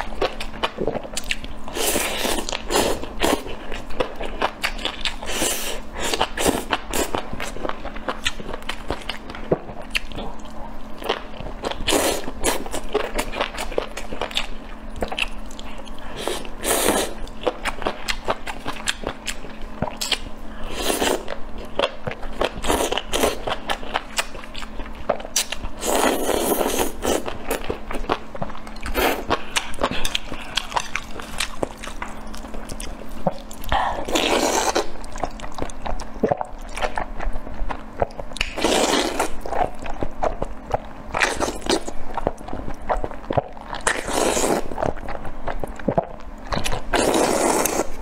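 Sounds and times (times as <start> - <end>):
biting and chewing food: 27.2 - 48.0.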